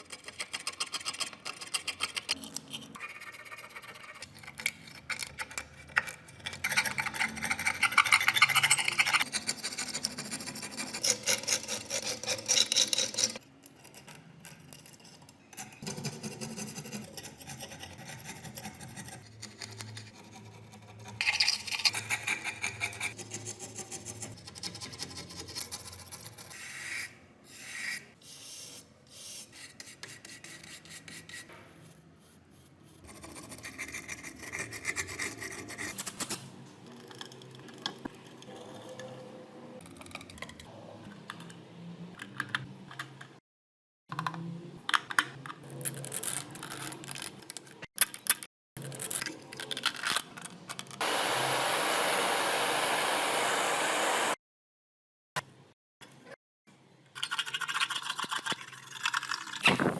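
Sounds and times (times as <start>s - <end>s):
steady loud hiss: 51.0s - 54.4s.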